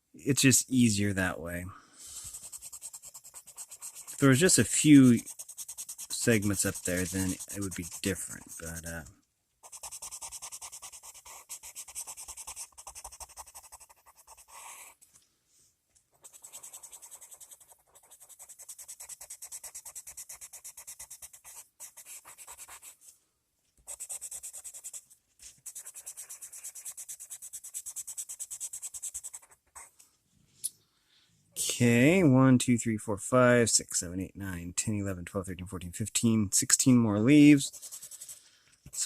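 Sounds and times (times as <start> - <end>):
coloured pencil shading on paper: 2.1 - 15.0, 16.1 - 23.0, 23.8 - 30.0, 37.6 - 39.0.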